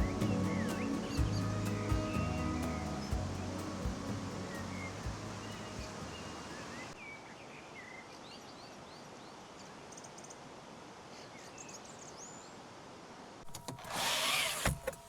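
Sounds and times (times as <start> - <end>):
steady rushing background: 0.0 - 7.0
songbirds chirping: 0.0 - 10.2.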